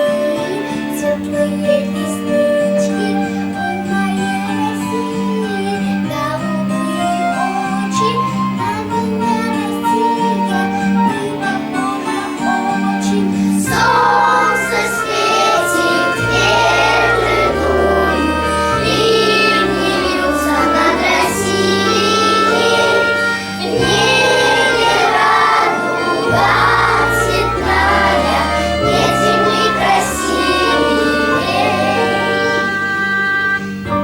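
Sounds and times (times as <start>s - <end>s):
children's choir singing: 0.0s - 34.0s
bass line in long notes: 13.6s - 34.0s.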